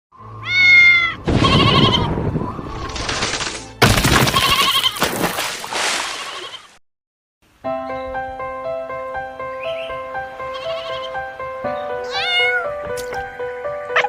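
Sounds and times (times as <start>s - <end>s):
high pitched animal call: 0.4s - 2.1s, 11.8s - 12.7s
wavering strained animal cries: 0.4s - 2.1s, 10.5s - 11.2s, 12.0s - 12.8s.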